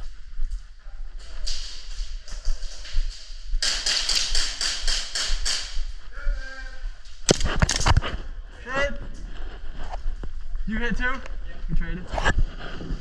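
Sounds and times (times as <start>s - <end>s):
airsoft guns firing: 3.6s - 5.9s.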